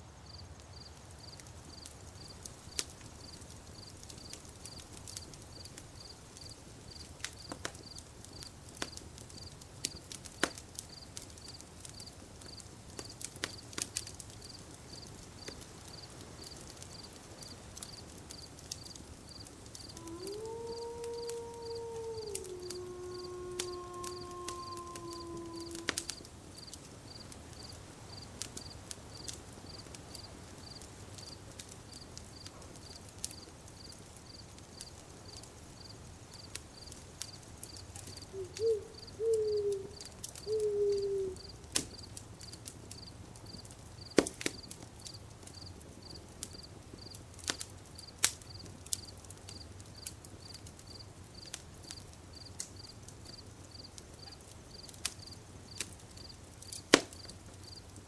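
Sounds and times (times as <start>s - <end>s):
cricket chirping: 0.1s - 7.1s, 10.9s - 12.6s, 14.4s - 42.1s, 53.8s - 56.8s
campfire crackling and popping: 0.1s - 58.0s.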